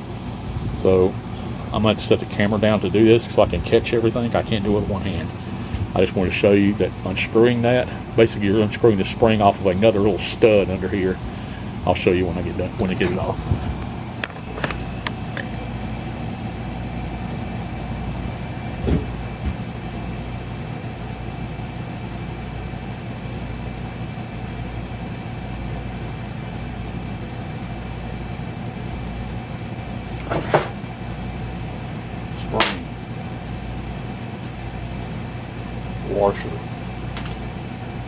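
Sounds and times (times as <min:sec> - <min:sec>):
low machine hum: 0:00.0 - 0:38.0
small metal parts clicking: 0:37.2 - 0:37.4.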